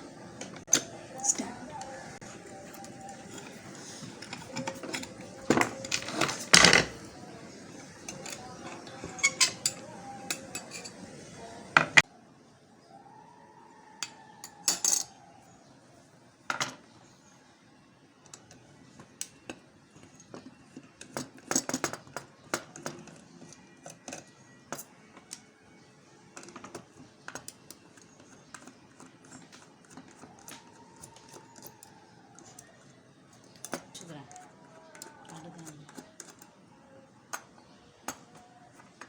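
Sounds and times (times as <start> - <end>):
small metal parts and tools clinking: 0.4 - 7.1, 7.8 - 11.1, 14.0 - 15.2, 18.2 - 25.5, 26.3 - 36.6.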